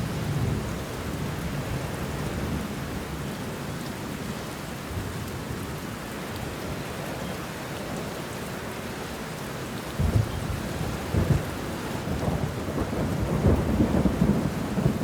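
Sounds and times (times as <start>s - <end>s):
low rumble of thunder: 0.0s - 2.8s, 10.0s - 15.0s
heavy rain on leaves: 0.0s - 15.0s.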